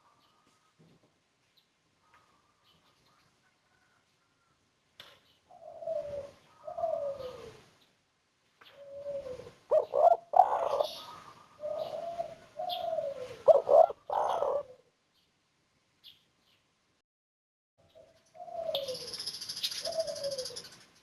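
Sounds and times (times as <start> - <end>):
dove cooing: 5.5 - 7.7, 8.7 - 14.9, 18.3 - 20.7.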